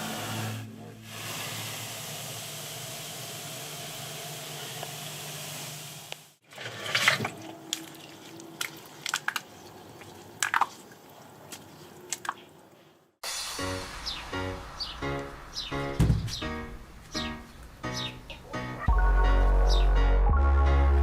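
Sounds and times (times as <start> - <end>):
foam fizzing with a hiss: 1.0 - 6.3, 13.2 - 15.6
liquid dripping and splattering: 7.2 - 12.5.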